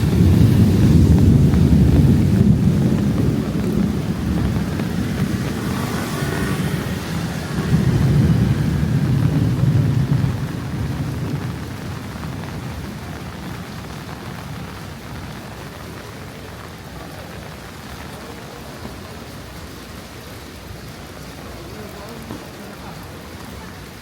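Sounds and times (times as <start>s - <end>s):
thunder rolling: 0.0s - 16.0s
steady rain: 0.0s - 24.0s.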